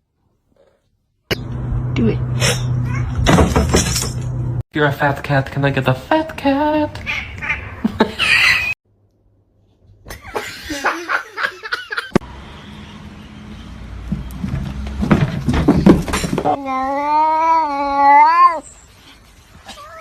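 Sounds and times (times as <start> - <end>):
cat yowling: 2.8 - 3.2, 16.6 - 18.8.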